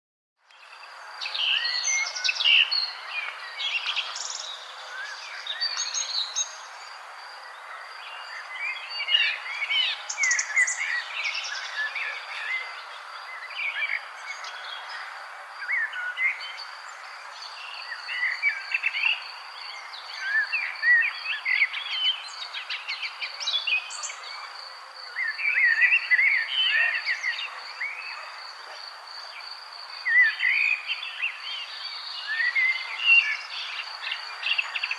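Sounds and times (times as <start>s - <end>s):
songbirds chirping: 0.4s - 34.9s.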